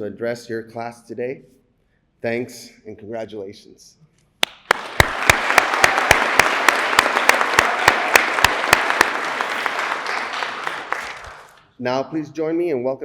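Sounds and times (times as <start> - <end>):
audience applauding: 4.4 - 11.6
close loud hand claps: 4.4 - 11.7.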